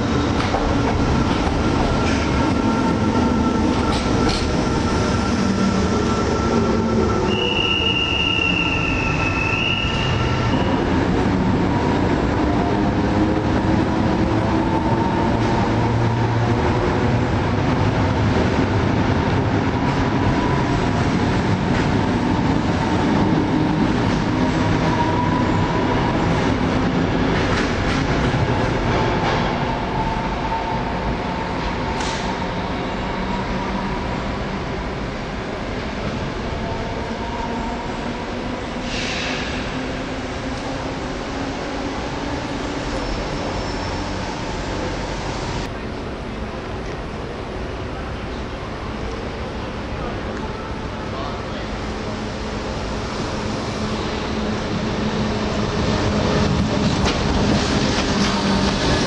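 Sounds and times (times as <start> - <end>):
train wheels rumbling on rail: 0.0 - 59.0
high wheel squeal: 2.0 - 10.9, 42.8 - 44.4.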